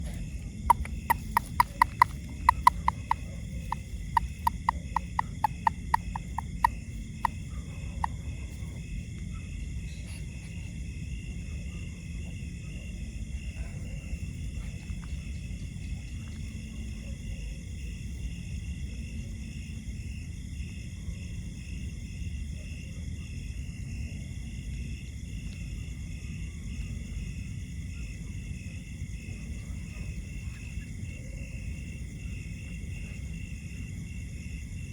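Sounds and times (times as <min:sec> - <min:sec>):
pulsing insect trill: 0:00.0 - 0:22.7, 0:23.3 - 0:34.9
frog calling sharply: 0:00.7 - 0:08.2.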